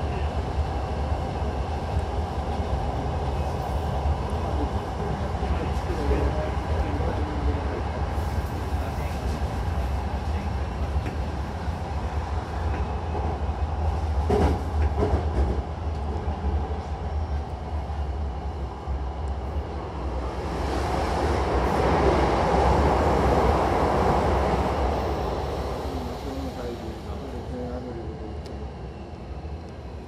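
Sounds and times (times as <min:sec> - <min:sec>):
train rumble inside carriage: 0:00.0 - 0:30.0
rail clacks: 0:14.2 - 0:16.2.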